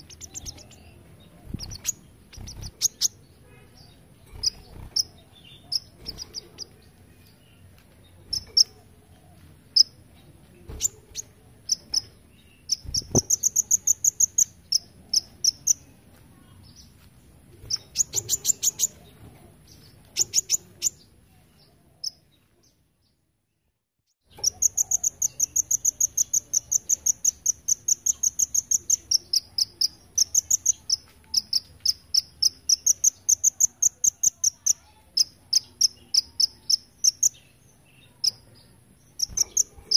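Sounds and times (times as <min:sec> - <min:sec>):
bird singing rapid high chips: 0:00.0 - 0:03.2, 0:04.3 - 0:06.8, 0:10.8 - 0:15.8, 0:20.2 - 0:21.0, 0:24.3 - 0:38.4, 0:39.1 - 0:39.9.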